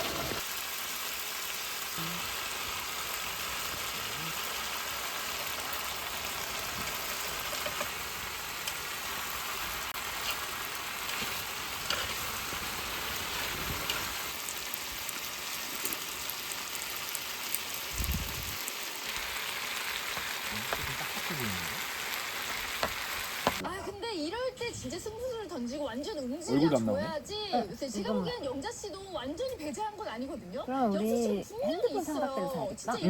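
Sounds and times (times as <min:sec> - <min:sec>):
meat sizzling in a hot pan: 0:00.0 - 0:23.6
small crackles: 0:00.0 - 0:23.6.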